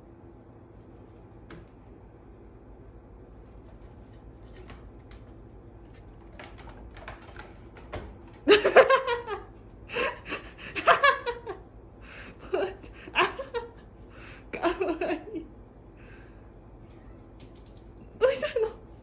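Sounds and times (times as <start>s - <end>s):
person laughing loudly: 8.5s - 11.6s.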